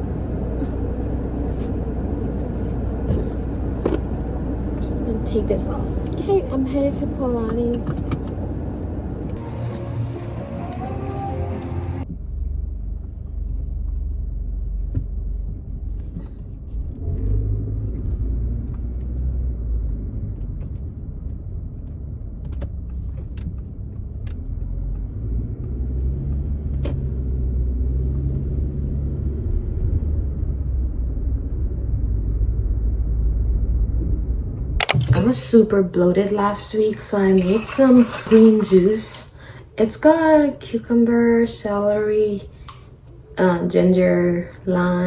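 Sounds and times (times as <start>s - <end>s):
car engine and road noise: 0.0s - 35.6s.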